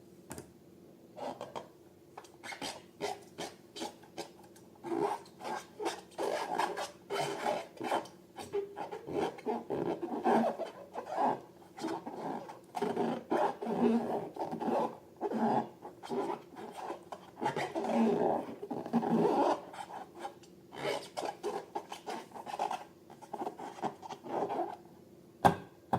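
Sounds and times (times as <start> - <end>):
rubber balloons rubbing: 4.9 - 24.8.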